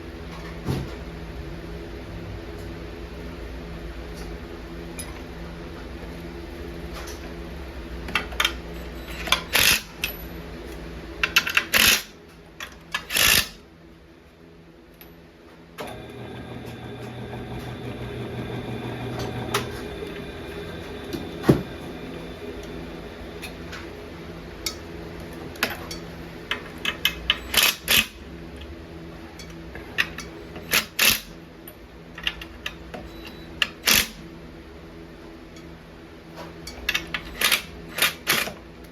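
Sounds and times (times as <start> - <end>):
metal lathe motor humming: 15.8 - 24.2.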